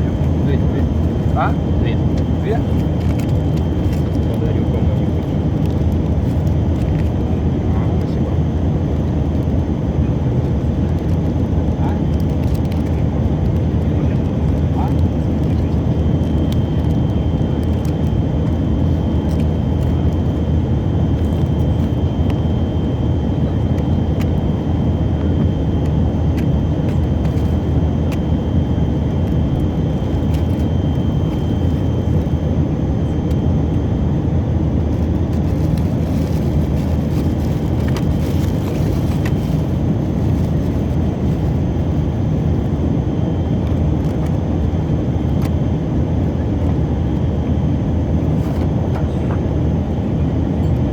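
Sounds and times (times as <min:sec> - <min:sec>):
airplane cabin engine noise: 0:00.0 - 0:50.9
faint high whine: 0:12.9 - 0:50.9.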